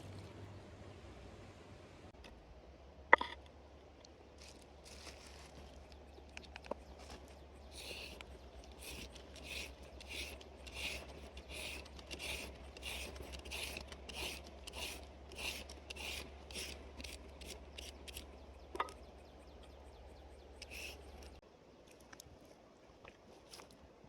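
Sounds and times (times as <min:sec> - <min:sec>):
rasping scrape strokes: 0:07.7 - 0:18.3.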